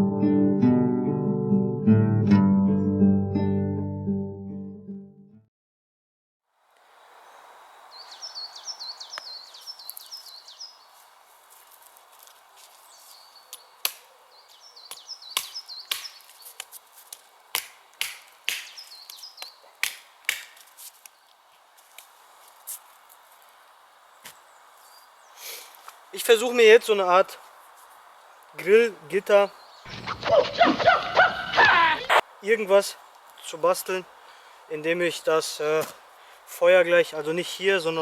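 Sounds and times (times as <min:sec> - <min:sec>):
bird chirping: 0:07.1 - 0:11.0, 0:12.8 - 0:16.6, 0:18.6 - 0:19.8, 0:29.4 - 0:32.2
sharp knocks and snaps: 0:13.5 - 0:14.1, 0:14.9 - 0:21.2.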